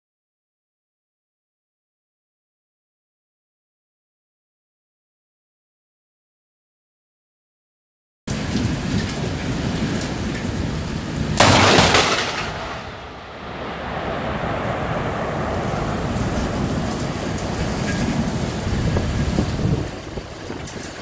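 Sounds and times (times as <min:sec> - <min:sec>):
steady rain: 0:08.3 - 0:21.0
thunder crack: 0:11.4 - 0:20.0.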